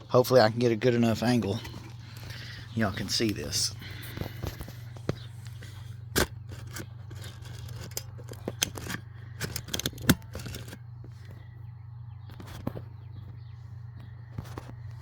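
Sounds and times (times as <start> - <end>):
steady low hum: 0.0 - 15.0
gear clicking and clinking: 5.6 - 10.8.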